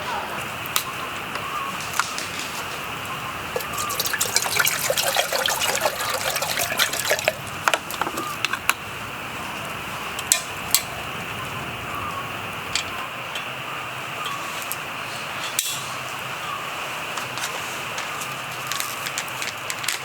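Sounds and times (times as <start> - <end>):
liquid being poured: 3.5 - 8.4.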